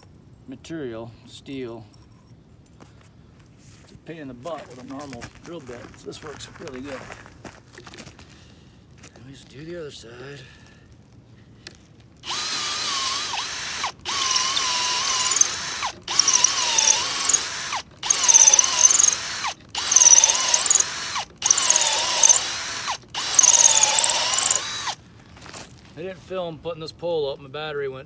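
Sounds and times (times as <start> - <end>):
drill whining through steel: 12.2 - 25.0.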